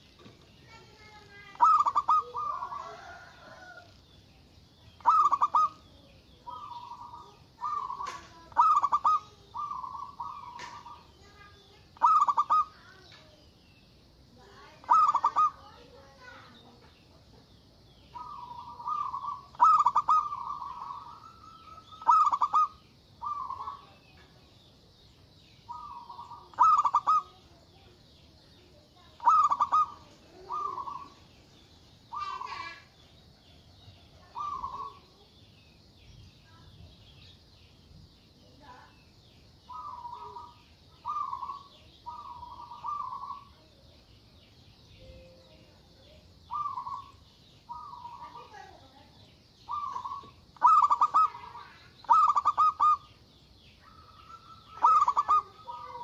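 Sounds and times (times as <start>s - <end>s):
faint high-pitched hiss: 0.0s - 56.0s
dove cooing: 0.7s - 4.0s, 5.0s - 13.0s, 14.6s - 16.5s, 18.1s - 24.1s, 25.7s - 28.0s, 29.0s - 31.3s, 32.1s - 35.2s, 39.7s - 43.8s, 46.5s - 48.8s, 49.7s - 53.2s, 53.8s - 56.0s.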